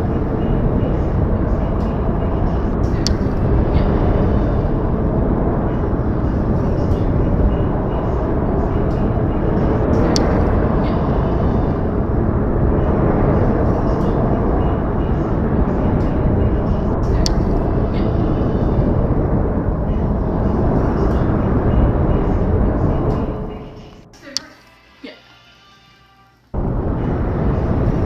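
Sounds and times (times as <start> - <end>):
dull rumbling hiss: 0.0 - 25.7, 26.4 - 28.0
sharp ticks: 2.8 - 3.9, 10.0 - 10.4, 17.1 - 17.6.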